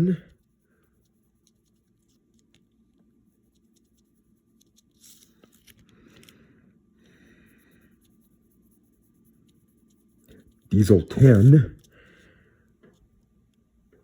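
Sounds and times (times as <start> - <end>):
pencil scratching on paper: 0.0 - 5.8, 7.3 - 11.9.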